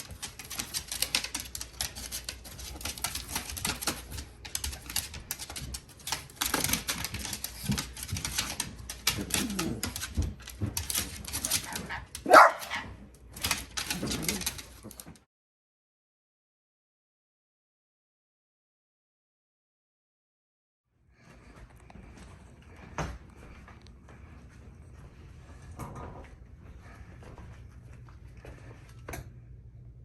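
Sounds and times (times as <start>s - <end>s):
dog barking: 12.2s - 12.9s.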